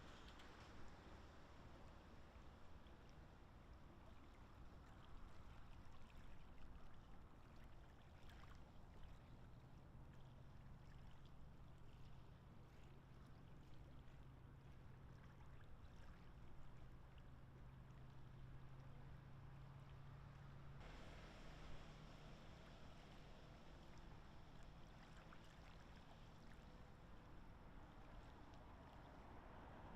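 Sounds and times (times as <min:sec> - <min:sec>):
steady low hum: 0:20.7 - 0:29.0.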